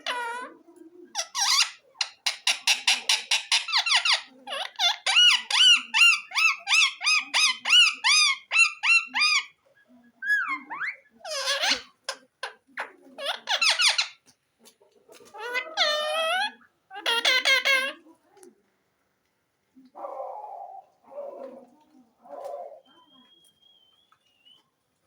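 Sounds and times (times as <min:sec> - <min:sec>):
parrot chirping and calling: 0:00.0 - 0:09.6, 0:10.2 - 0:14.3, 0:15.2 - 0:18.1
parrot squawk: 0:01.1 - 0:09.6, 0:10.2 - 0:14.2, 0:15.2 - 0:18.0.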